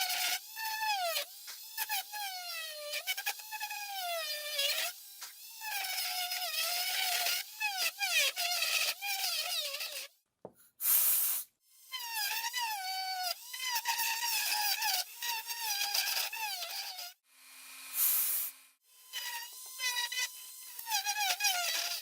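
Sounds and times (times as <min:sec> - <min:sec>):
short hiss: 0:10.8 - 0:11.5, 0:18.0 - 0:18.6.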